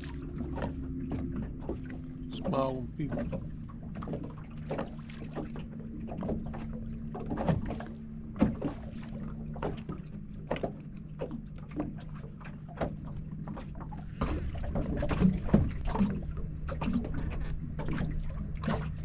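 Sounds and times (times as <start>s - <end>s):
water slapping against hull: 0.0s - 19.0s
steady low hum: 13.6s - 18.6s.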